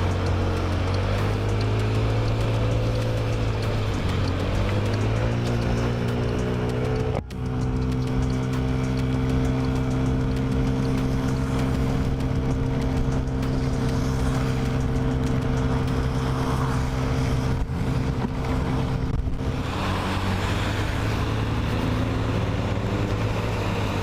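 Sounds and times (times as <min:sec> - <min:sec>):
scooter engine cruising: 0:00.0 - 0:24.0
wind and wet road hiss: 0:09.5 - 0:24.0.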